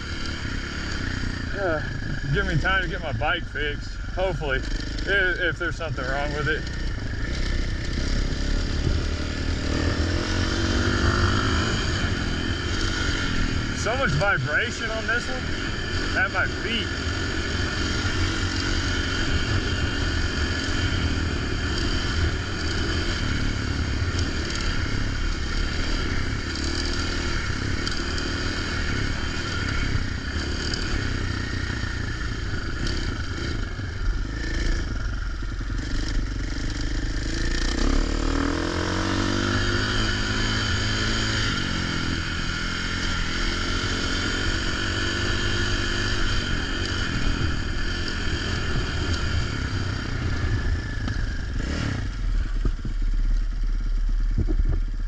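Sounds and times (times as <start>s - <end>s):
dirt bike engine revving: 0.0s - 54.9s
wind noise: 54.2s - 55.0s.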